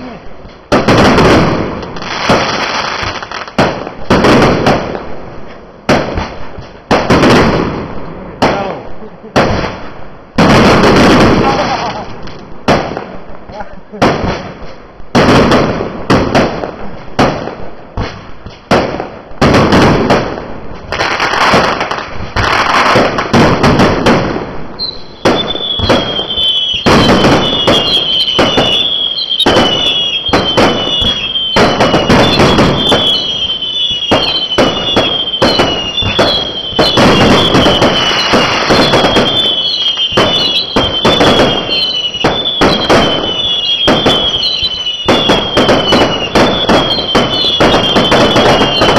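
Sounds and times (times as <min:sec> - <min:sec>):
fireworks bangs and crackles: 0:00.0 - 0:48.9
falling firework whistle: 0:24.8 - 0:48.9.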